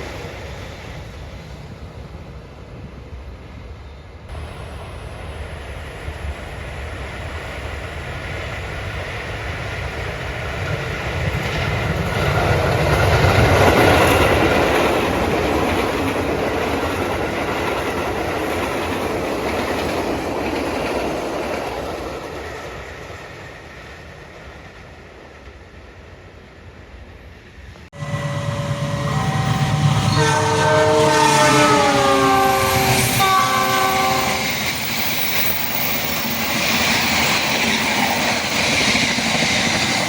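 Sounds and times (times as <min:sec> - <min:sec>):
train wheels clattering over rails: 0:34.3 - 0:40.0.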